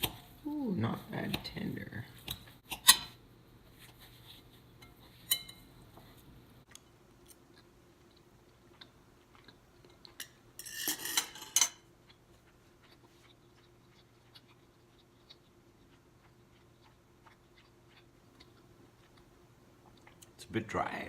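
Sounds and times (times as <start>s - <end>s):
cutlery clinking on a plate: 4.8s - 5.6s, 10.2s - 11.8s
cutlery scraping: 4.8s - 5.6s, 10.2s - 11.8s.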